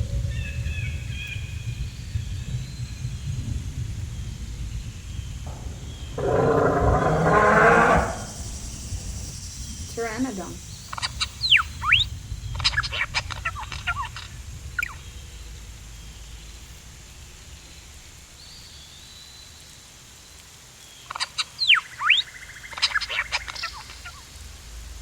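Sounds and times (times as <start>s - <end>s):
shrill screeching calls: 5.5s - 14.2s
chattering clicks: 5.5s - 15.0s.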